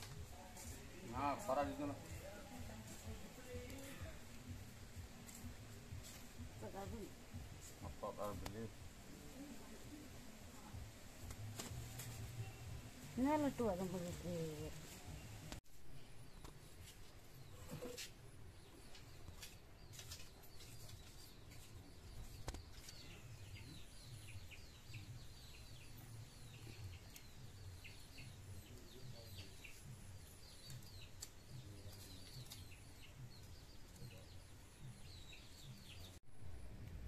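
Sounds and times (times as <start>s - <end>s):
small birds chirping: 0.0s - 36.2s
faint low rumble: 36.3s - 37.0s.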